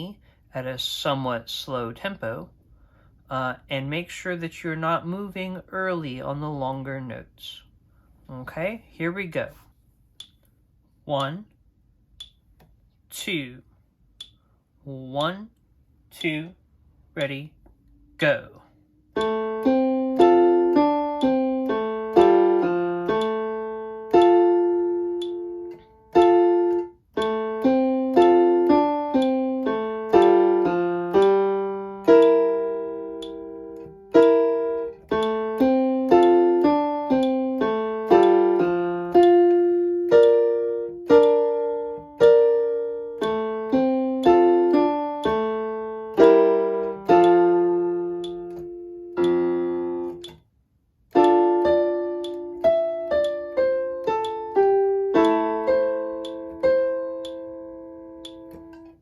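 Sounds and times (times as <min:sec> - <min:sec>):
piano playing: 0:19.1 - 0:50.4, 0:51.1 - 0:59.0.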